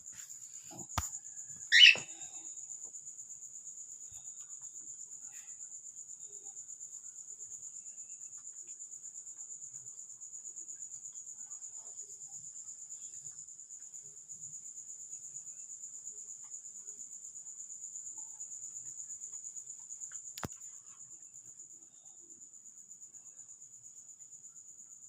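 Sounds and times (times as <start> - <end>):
cricket trilling: 0.0 - 25.0
cockatiel call: 1.7 - 2.2.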